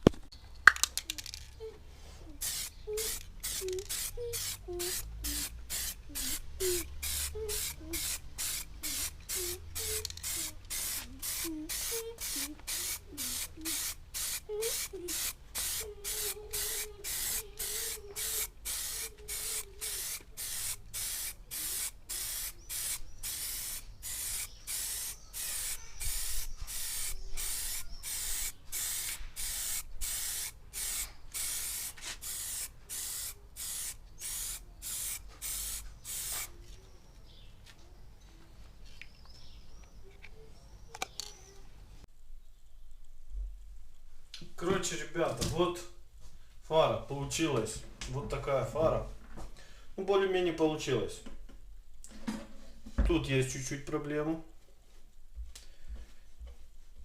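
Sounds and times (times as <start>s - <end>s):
spray can hissing: 2.4s - 36.5s.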